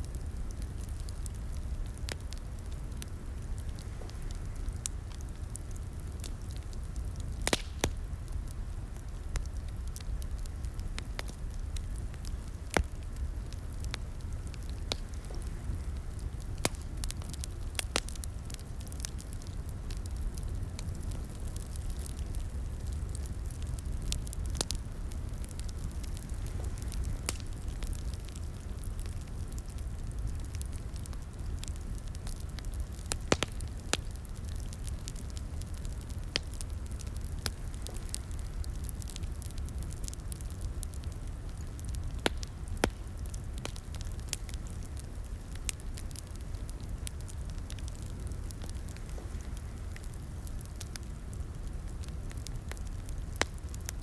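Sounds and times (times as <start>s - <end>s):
fire popping and snapping: 0.0s - 54.0s
wood fire rumbling: 0.0s - 54.0s.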